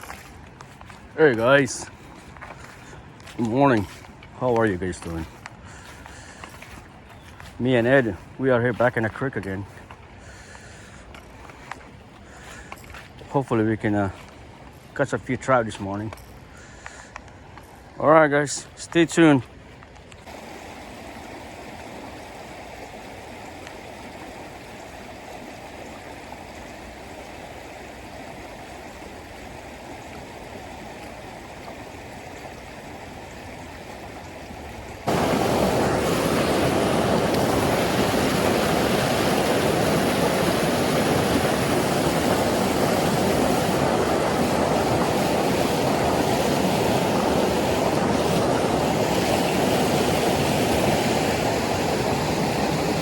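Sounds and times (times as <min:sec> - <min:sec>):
creek water rushing: 0:00.0 - 0:53.0.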